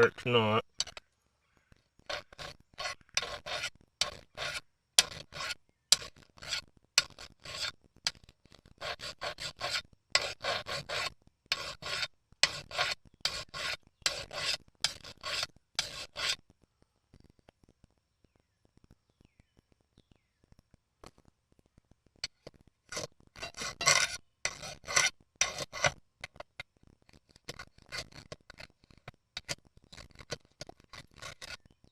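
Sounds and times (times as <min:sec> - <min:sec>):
file rasping across metal: 0:02.1 - 0:07.7, 0:08.8 - 0:16.4, 0:22.9 - 0:26.4, 0:29.4 - 0:31.6.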